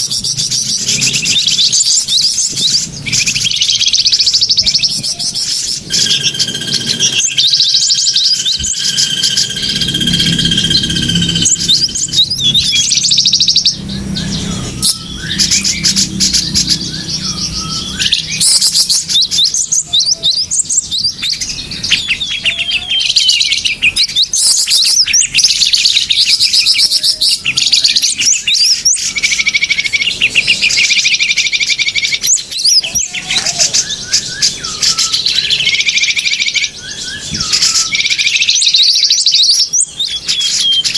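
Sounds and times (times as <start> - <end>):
small songbirds chirping: 0.0 - 40.9
long steady whistled note: 5.8 - 12.8.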